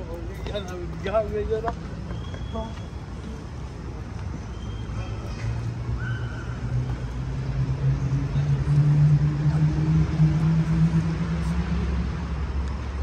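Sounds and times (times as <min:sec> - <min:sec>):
car engine pulling away: 0:06.2 - 0:13.0.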